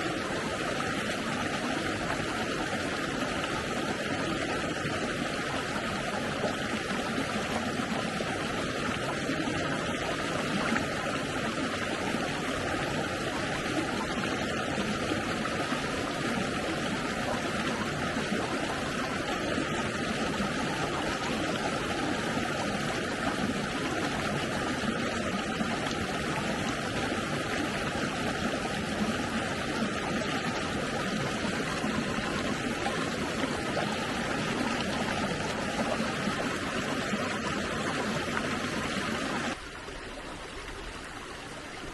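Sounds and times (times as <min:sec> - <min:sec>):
stream water rushing: 0:00.0 - 0:41.9.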